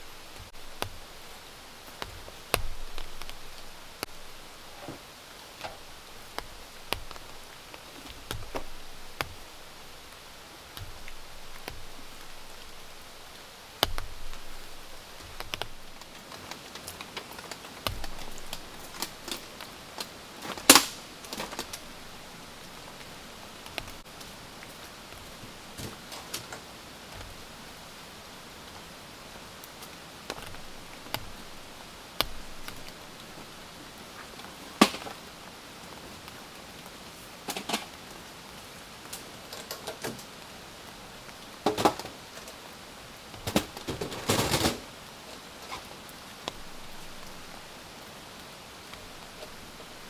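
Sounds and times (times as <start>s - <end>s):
small clicks and knocks: 0.0s - 28.8s, 29.6s - 35.3s, 39.0s - 40.4s, 41.3s - 44.9s
rain hissing: 0.0s - 50.0s.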